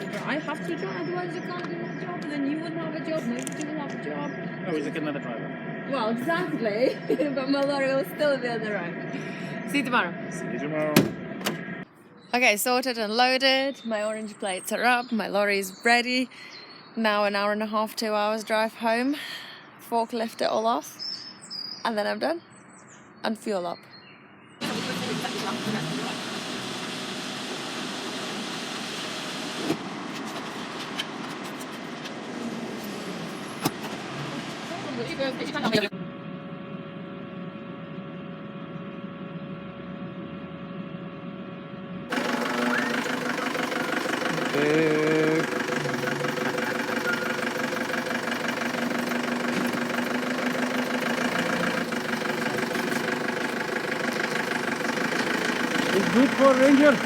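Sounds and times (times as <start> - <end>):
lorry engine running: 0.0 - 11.9, 24.6 - 57.0.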